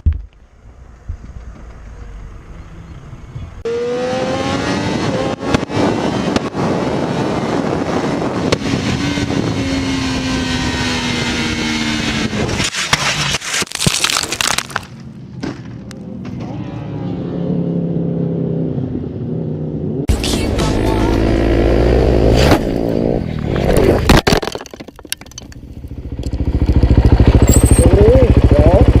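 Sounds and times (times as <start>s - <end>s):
wind rush: 4.5s - 12.8s
motorcycle engine running: 25.5s - 29.0s.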